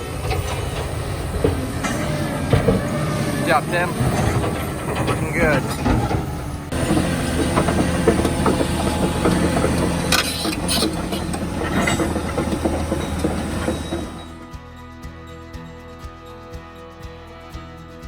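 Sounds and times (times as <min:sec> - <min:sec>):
steel clanking and scraping on rock: 0:00.0 - 0:14.4
diesel engine running: 0:00.0 - 0:14.8
music: 0:11.2 - 0:18.0.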